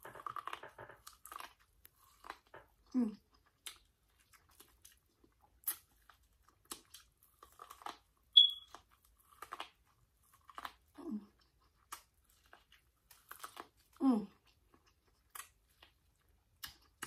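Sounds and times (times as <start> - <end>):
person chewing and crunching food: 0.0 - 17.0
brief high squeak: 8.4 - 8.7.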